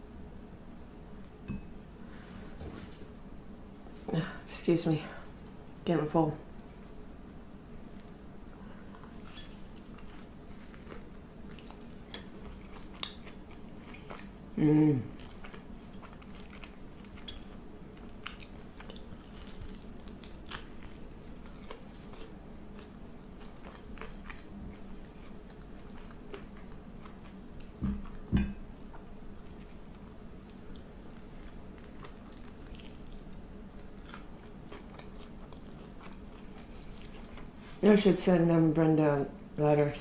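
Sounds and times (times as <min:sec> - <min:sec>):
chewing and biting food: 0:06.6 - 0:17.3, 0:17.9 - 0:37.6.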